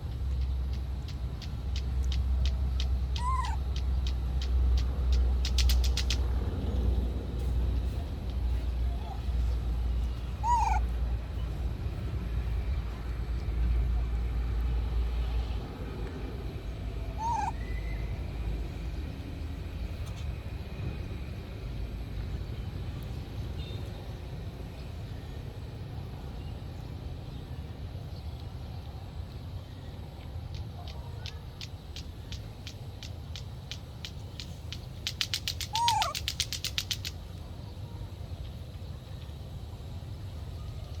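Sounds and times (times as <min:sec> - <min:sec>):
steady low rumble: 0:00.0 - 0:41.0
animal high call: 0:03.2 - 0:03.7, 0:10.3 - 0:10.9, 0:17.1 - 0:18.1, 0:35.3 - 0:36.5.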